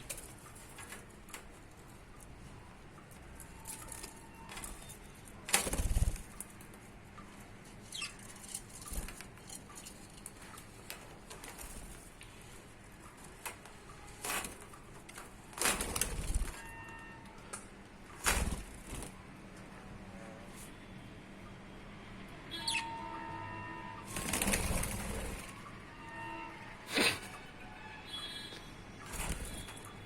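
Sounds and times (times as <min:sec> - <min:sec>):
budgies fluttering wings: 0:05.6 - 0:06.4, 0:24.1 - 0:25.5, 0:29.1 - 0:30.0
faint bird chirps: 0:22.5 - 0:24.0.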